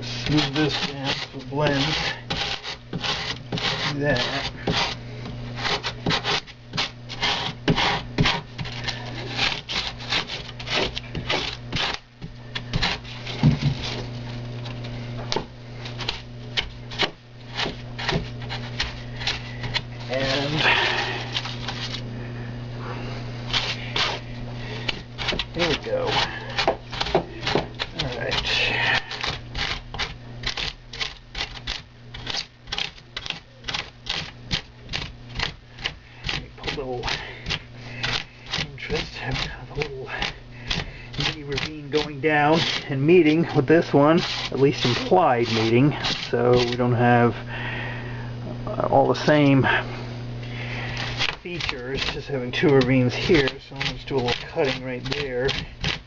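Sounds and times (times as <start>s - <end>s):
foam being scraped by hand: 0.0s - 14.3s, 15.9s - 22.0s, 23.5s - 47.3s, 50.7s - 56.0s
steady low hum: 0.0s - 56.0s.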